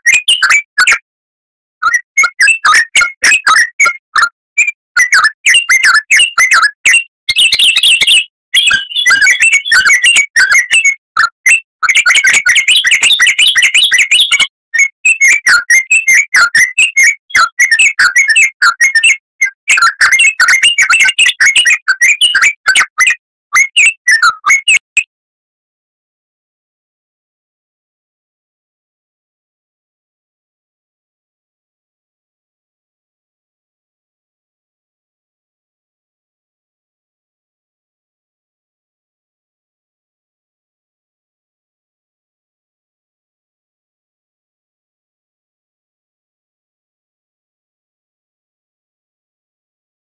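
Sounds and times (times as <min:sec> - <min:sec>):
bird singing: 0:04.6 - 0:25.0.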